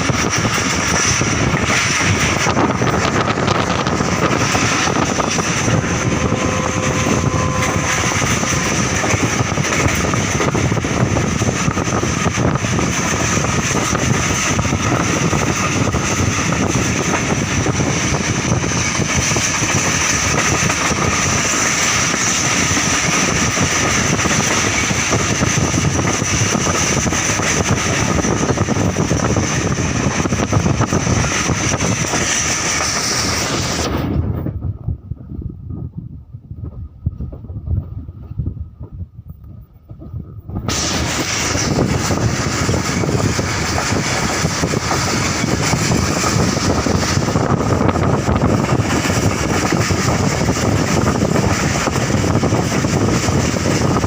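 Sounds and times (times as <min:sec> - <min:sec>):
passenger train rumbling: 0:00.0 - 0:54.0
high whine: 0:02.4 - 0:10.5.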